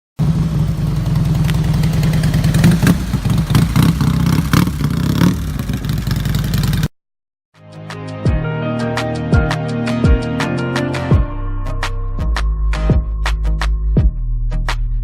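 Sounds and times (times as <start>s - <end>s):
motorcycle engine running: 0.2s - 6.9s.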